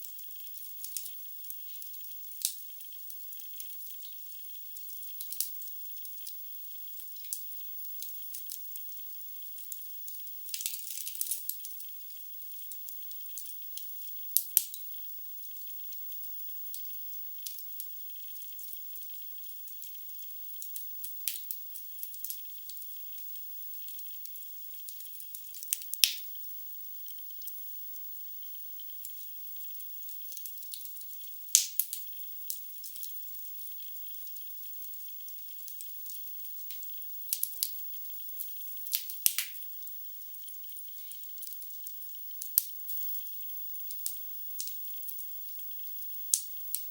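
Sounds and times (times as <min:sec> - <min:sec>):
wood fire crackling: 0:38.9 - 0:39.6.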